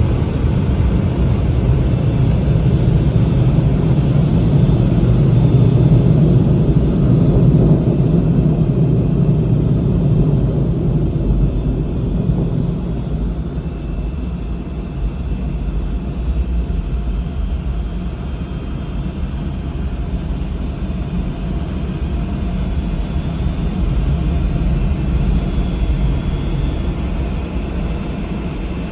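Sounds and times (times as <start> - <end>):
low mechanical rumble: 0.0 - 28.9.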